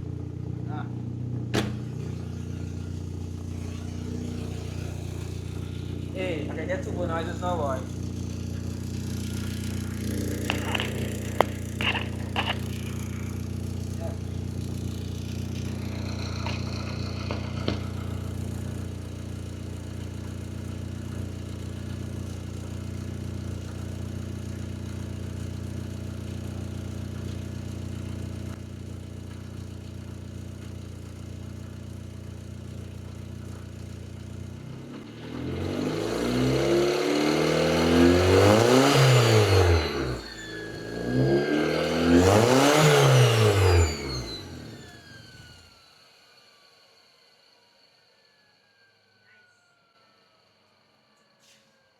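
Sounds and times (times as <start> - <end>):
car engine idling and revving: 0.0 - 47.2.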